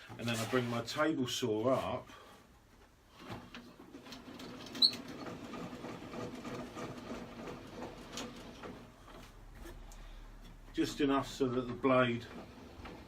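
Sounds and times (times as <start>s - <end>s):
handwheel cranking rattling grind: 4.0s - 8.8s.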